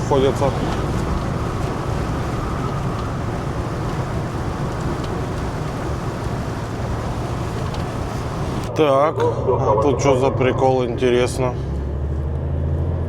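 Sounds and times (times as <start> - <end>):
heavy rain on cab: 0.0 - 8.7
truck engine and tyres droning: 0.0 - 13.0.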